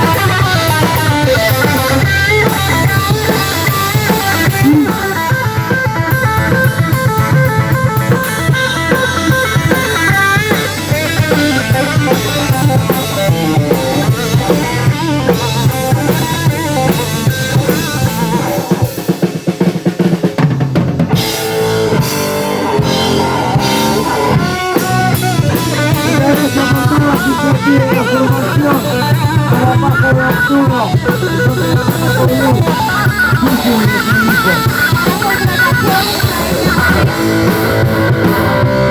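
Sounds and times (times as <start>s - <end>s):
drum kit: 0.0s - 38.9s
rock band playing live: 0.0s - 38.9s.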